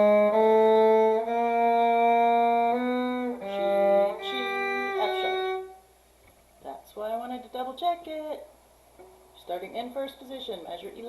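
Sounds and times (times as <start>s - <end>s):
violin playing held notes: 0.0s - 5.9s.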